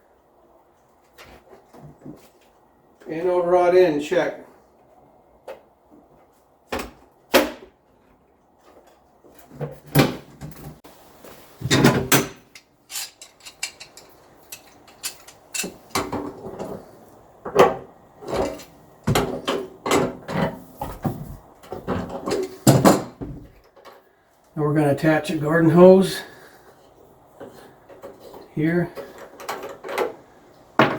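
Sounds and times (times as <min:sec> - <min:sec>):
tools clunking and clicking: 0:11.6 - 0:24.1, 0:26.9 - 0:30.9.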